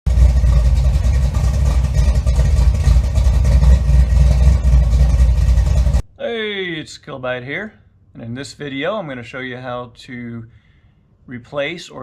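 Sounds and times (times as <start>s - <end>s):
car engine rumbling: 0.0s - 6.1s.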